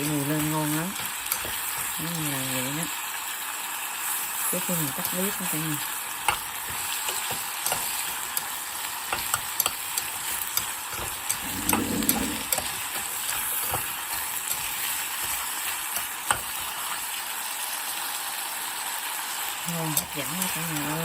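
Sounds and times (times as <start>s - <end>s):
sauce sizzling in a pan: 0.0s - 21.0s
utensil clicking against pan: 1.0s - 2.0s, 6.2s - 17.0s.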